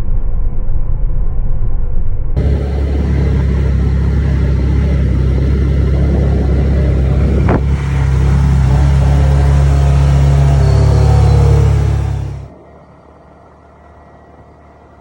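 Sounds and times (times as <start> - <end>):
car engine deep rumble: 2.4 - 15.0.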